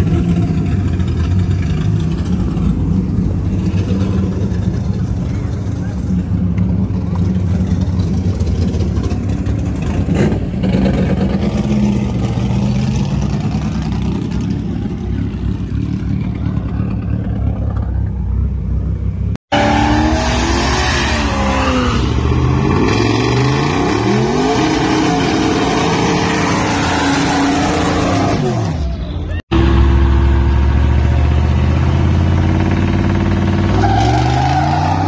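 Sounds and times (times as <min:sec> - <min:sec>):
cars idling: 0:00.0 - 0:19.4
engine revving: 0:19.4 - 0:35.0.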